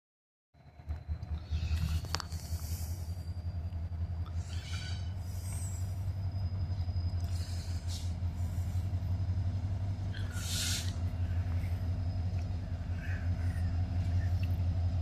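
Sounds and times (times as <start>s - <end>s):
diesel locomotives rumbling: 0.6s - 15.0s
short hisses: 10.1s - 11.1s.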